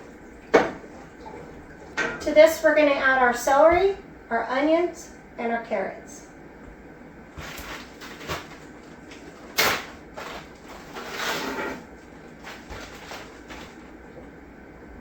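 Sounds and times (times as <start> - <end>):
vegetables tumbling into broth: 7.3 - 14.4.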